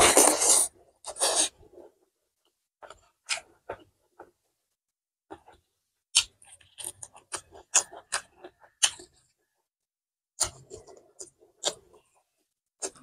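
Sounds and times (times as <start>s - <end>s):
wet chewing and lip smacks: 6.2s - 9.3s.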